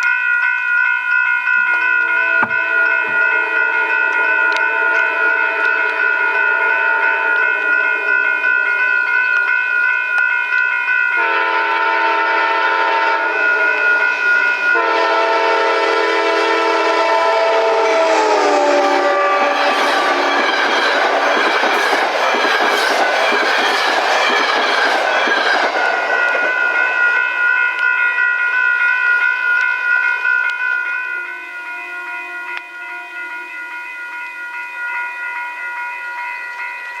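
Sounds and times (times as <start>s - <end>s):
high warning tone: 0.0s - 37.0s
train horn: 1.7s - 7.4s, 11.2s - 20.9s
train wheels on rails clattering: 19.5s - 28.3s.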